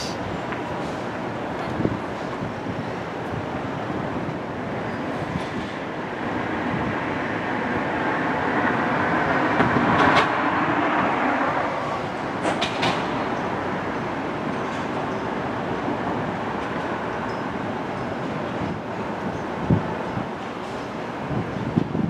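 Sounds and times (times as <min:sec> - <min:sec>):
train rolling along track: 0:00.0 - 0:22.0.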